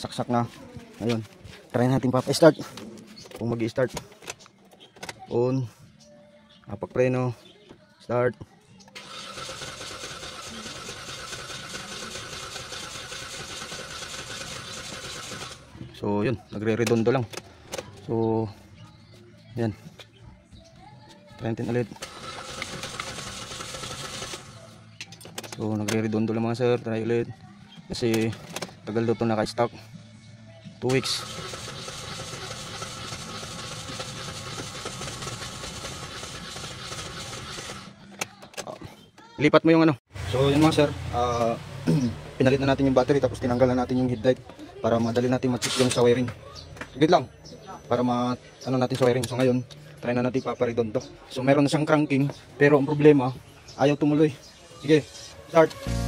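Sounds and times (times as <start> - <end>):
starter motor cranking engine: 9.0 - 15.7, 21.9 - 24.8, 30.9 - 38.0.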